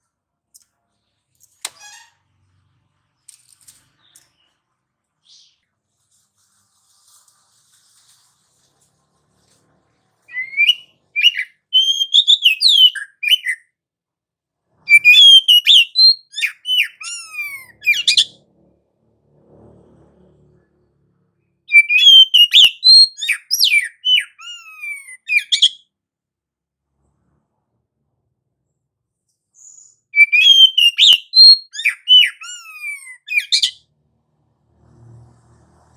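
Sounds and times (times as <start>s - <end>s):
bird singing whistled notes: 10.3s - 13.6s, 14.9s - 18.3s, 21.7s - 25.8s, 29.6s - 33.8s.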